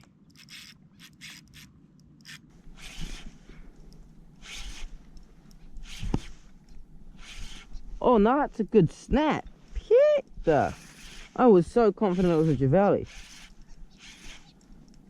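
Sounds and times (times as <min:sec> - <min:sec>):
fishing reel winding: 0:00.0 - 0:03.3, 0:04.4 - 0:04.9, 0:10.6 - 0:11.4, 0:12.1 - 0:15.0.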